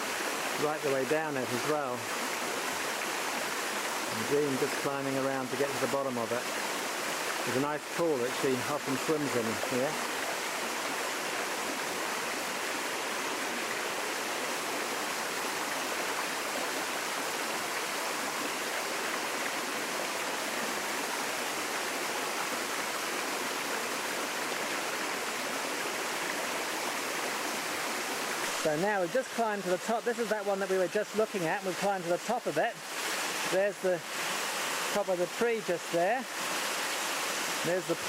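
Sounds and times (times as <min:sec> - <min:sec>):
waterfall pouring into pool: 0:00.0 - 0:38.0.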